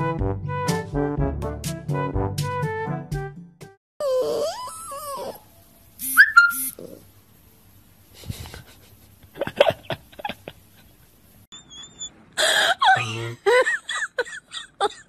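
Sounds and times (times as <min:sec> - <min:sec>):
puppy howling: 0:04.0 - 0:05.5
puppy yelps: 0:04.0 - 0:07.0, 0:11.5 - 0:12.2.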